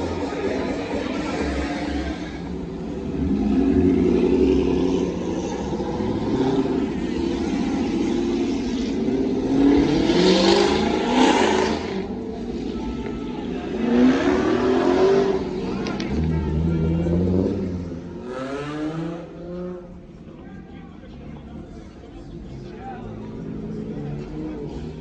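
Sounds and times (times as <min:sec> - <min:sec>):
loud rush of noise: 0:00.0 - 0:19.2
car engines revving: 0:00.0 - 0:25.0.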